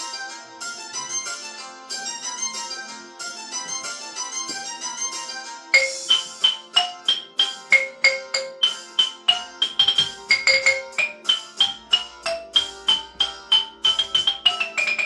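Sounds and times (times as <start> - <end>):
mallet percussion melody: 5.8 - 15.0
soft sustained accompaniment: 5.8 - 15.0.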